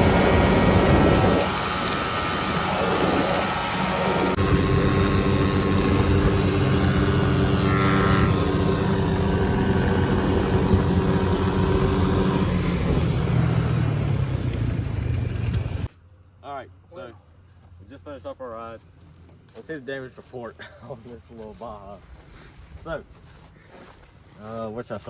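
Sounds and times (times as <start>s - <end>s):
small engines at full throttle: 0.0s - 15.9s.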